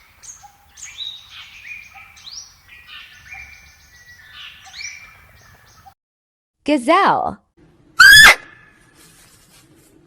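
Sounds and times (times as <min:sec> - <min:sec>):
small birds chirping: 0:00.0 - 0:06.0.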